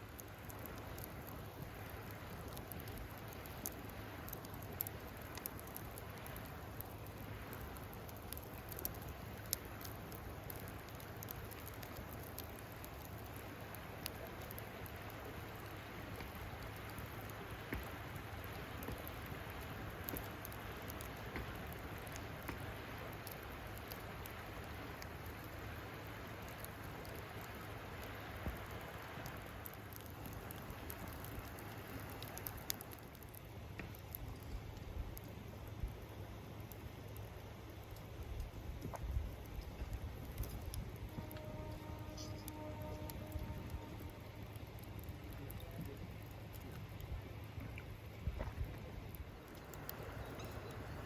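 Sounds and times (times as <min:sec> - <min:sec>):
campfire crackling and popping: 0:00.0 - 0:51.0
campfire hiss: 0:00.0 - 0:51.0.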